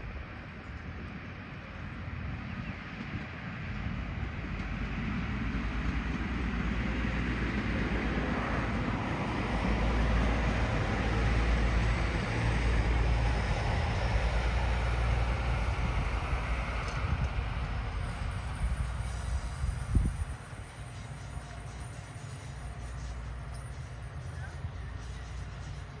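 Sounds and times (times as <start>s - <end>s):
train engine rumble: 0.0s - 26.0s
wheels rolling on rails: 16.8s - 26.0s.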